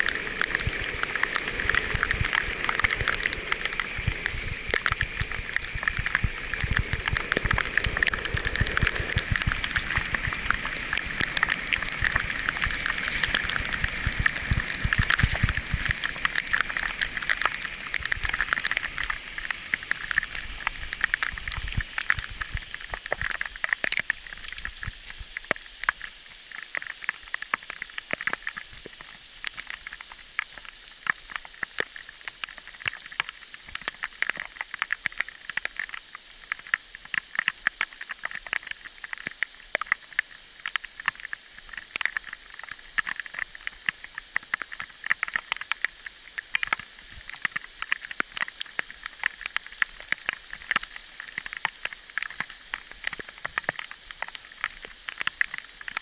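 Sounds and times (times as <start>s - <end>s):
bicycle rolling on rough track: 0.0s - 22.8s
steady hiss: 0.0s - 26.9s.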